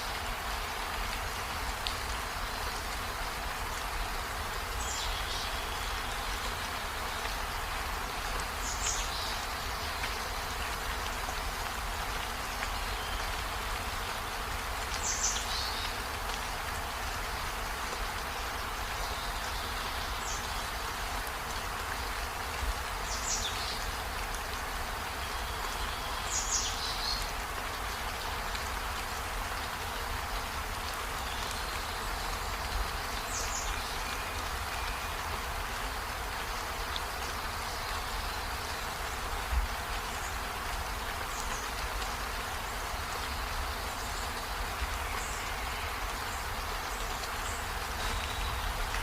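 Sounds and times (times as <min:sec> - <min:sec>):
steady rain falling: 0:00.0 - 0:49.0.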